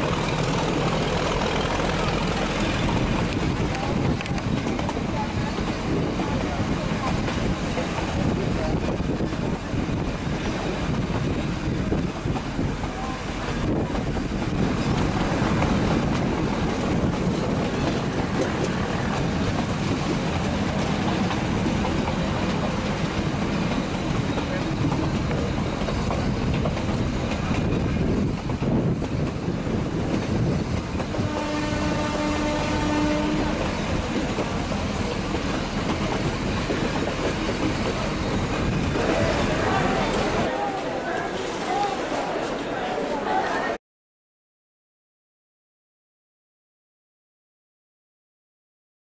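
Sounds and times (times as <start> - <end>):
train running rumble: 0.0 - 41.4
wind buffeting microphone: 2.6 - 40.5
train horn held tone: 31.2 - 33.7.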